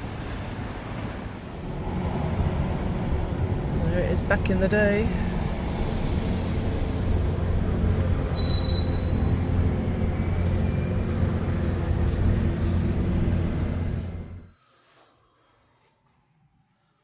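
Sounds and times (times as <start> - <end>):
faint high squeals: 8.2 - 13.8.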